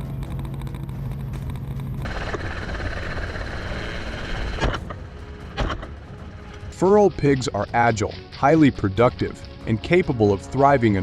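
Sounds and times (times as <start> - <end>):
vehicle engine noise: 0.0 - 7.4.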